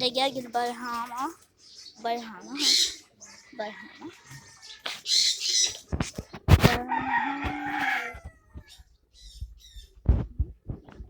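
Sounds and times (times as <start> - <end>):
small birds chirping: 0.0 - 6.8, 8.1 - 11.0
rooster crowing: 6.8 - 8.6.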